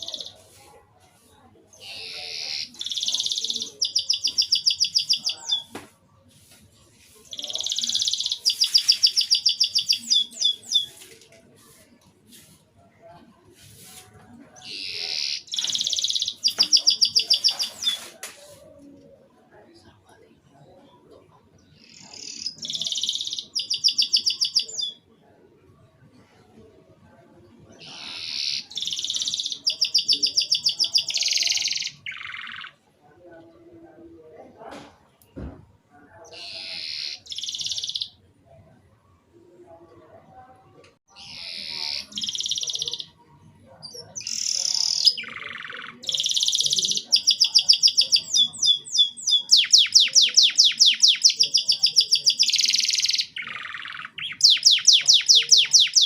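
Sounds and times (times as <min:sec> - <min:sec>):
canary singing: 0:00.0 - 0:00.4, 0:01.7 - 0:05.8, 0:07.2 - 0:11.0, 0:14.6 - 0:18.1, 0:21.8 - 0:25.0, 0:27.8 - 0:32.8, 0:36.3 - 0:38.2, 0:41.1 - 0:43.2, 0:43.8 - 0:56.0.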